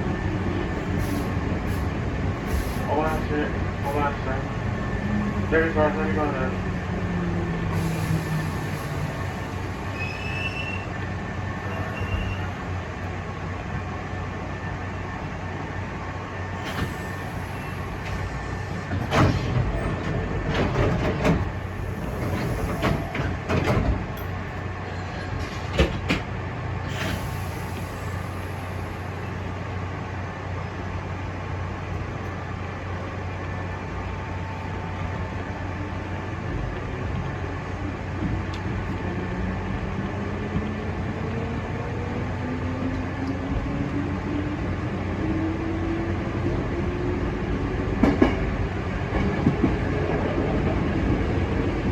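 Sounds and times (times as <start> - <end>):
electric train low hum: 0.0 - 51.9
train wheel clacks and knocks: 18.9 - 24.6, 25.2 - 26.4, 48.0 - 51.3.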